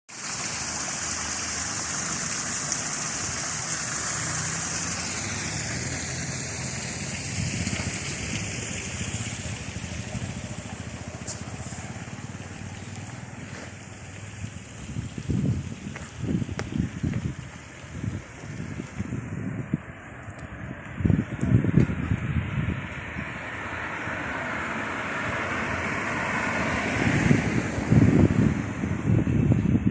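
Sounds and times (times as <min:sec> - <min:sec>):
low engine-like hum: 0:05.0 - 0:14.8.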